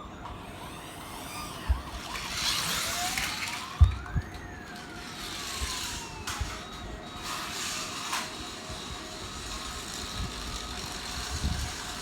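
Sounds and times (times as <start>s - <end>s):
police siren: 0.0s - 12.0s.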